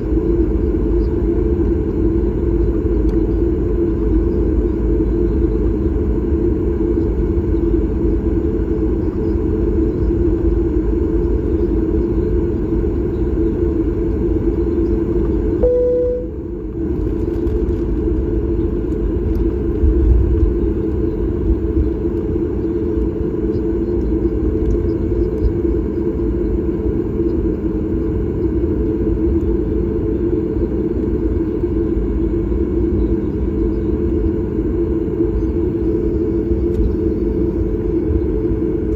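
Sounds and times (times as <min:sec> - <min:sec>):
airplane cabin rumble: 0:00.0 - 0:38.9
faint steady tones: 0:08.7 - 0:16.7
brief single tone: 0:15.6 - 0:16.5.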